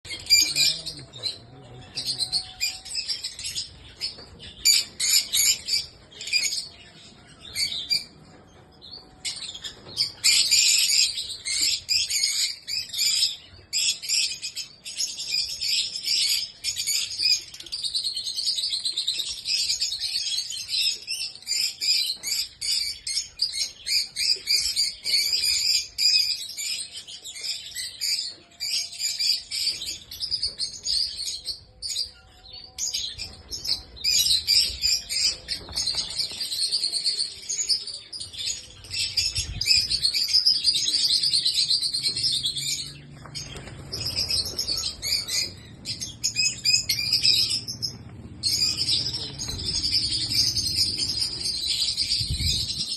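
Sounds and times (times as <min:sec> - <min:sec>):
birds chirping: 0:00.0 - 0:52.9.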